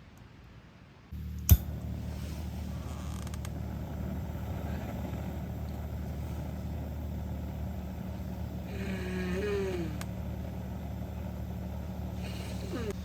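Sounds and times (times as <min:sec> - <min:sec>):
low engine-like hum: 0:01.1 - 0:13.0
sharp click: 0:01.4 - 0:01.8.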